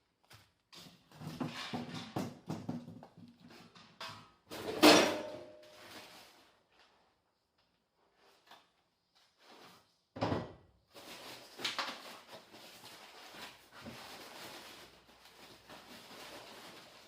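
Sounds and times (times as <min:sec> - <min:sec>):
rustling and clatter of parts: 0:10.9 - 0:17.0.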